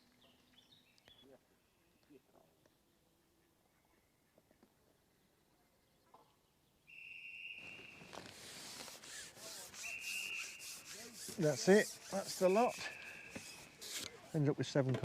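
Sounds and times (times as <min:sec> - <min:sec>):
referee whistle blasts: 0:06.9 - 0:08.1, 0:09.8 - 0:10.9
rustling against microphone: 0:07.6 - 0:14.8.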